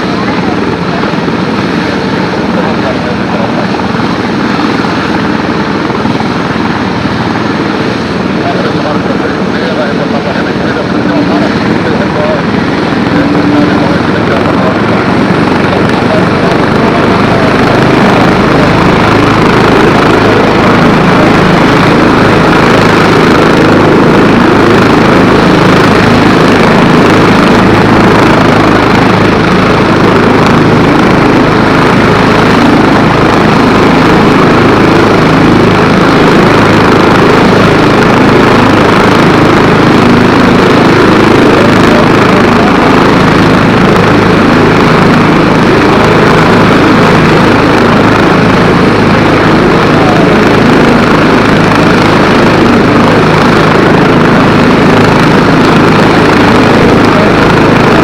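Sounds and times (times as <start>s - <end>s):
helicopter turbines and rotor drone: 0.0s - 58.0s.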